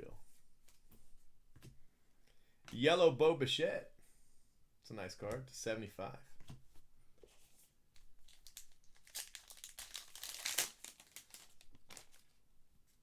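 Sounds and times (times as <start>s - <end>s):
plastic packaging crinkling: 8.2s - 12.4s.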